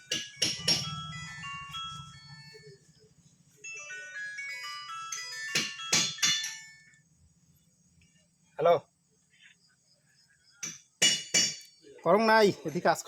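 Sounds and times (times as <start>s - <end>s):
phone ringtone melody: 0.0s - 7.0s
sharp metallic clinks: 0.0s - 7.0s, 10.5s - 12.0s.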